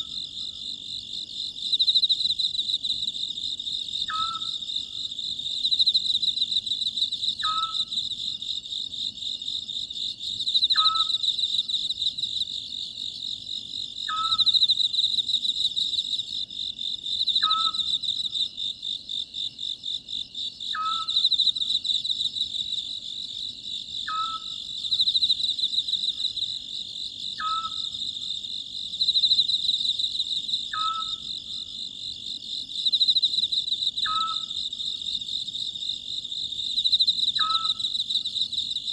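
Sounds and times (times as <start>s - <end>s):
crickets chirring: 0.0s - 38.9s
owl calling: 4.1s - 4.6s, 7.4s - 7.9s, 10.7s - 11.2s, 14.1s - 14.4s, 17.4s - 17.9s, 20.7s - 21.2s, 24.1s - 24.6s, 27.4s - 28.0s, 30.7s - 31.2s, 34.0s - 34.5s, 37.4s - 37.8s.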